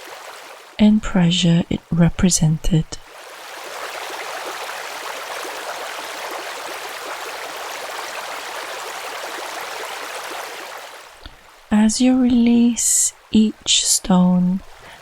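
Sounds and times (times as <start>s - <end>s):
stream water rushing: 0.0s - 0.8s, 3.0s - 11.7s.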